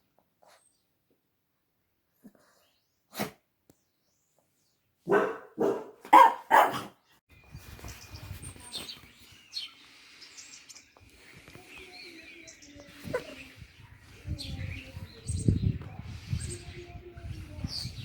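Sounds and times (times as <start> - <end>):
dog barking: 5.0 - 7.0.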